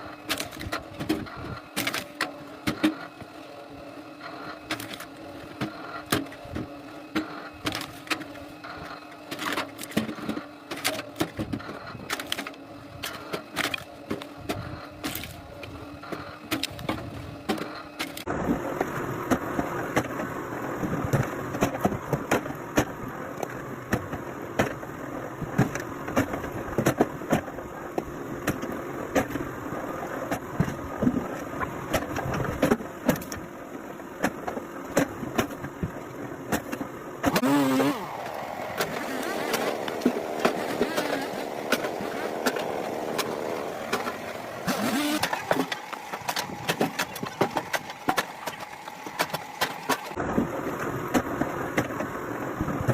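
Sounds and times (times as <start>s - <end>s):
machinery running: 37.2s - 52.3s.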